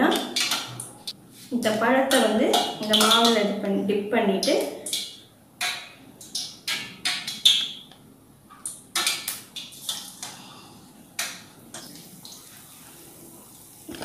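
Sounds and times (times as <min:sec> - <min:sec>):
faint frying sizzle: 0:09.6 - 0:14.0.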